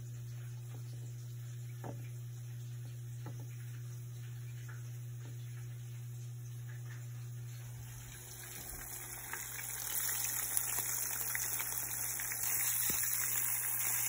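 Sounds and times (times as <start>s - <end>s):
fish frying in oil: 7.7s - 14.0s.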